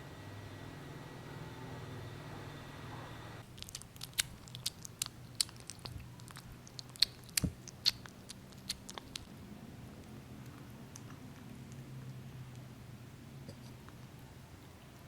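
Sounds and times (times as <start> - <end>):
steady hum: 0.0 - 3.6
kitten chewing food: 3.4 - 15.0.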